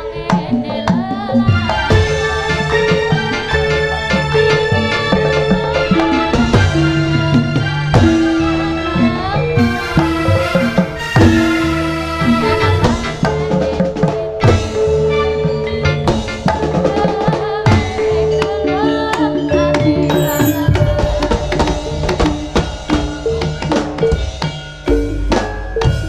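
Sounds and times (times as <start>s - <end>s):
hand drums beating: 16.1s - 26.0s
held melodic instrument notes: 19.5s - 21.4s.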